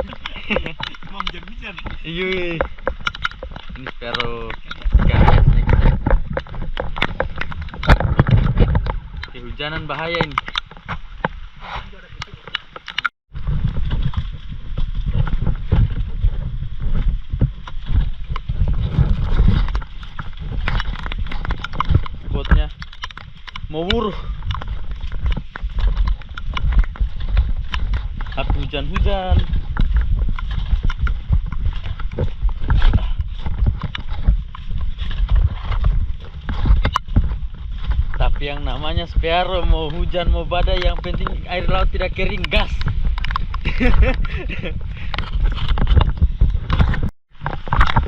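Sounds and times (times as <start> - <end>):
raindrops ticking on microphone: 0.0 - 48.0
wind buffeting microphone: 0.0 - 48.0.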